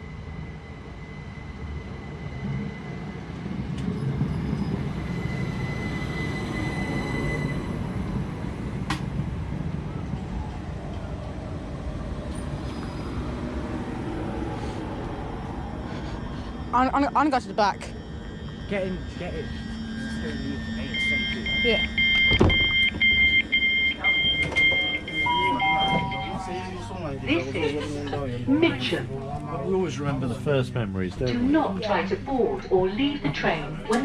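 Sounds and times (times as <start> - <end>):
train slowing to a stop: 0.0 - 34.0
high squeal: 1.0 - 8.3, 12.3 - 14.0, 17.9 - 23.0.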